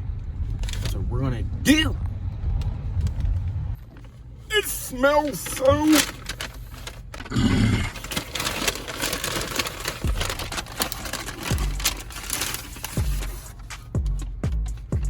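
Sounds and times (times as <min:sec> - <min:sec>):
paper bag rustling: 0:00.5 - 0:01.0, 0:04.0 - 0:07.3, 0:07.9 - 0:14.0.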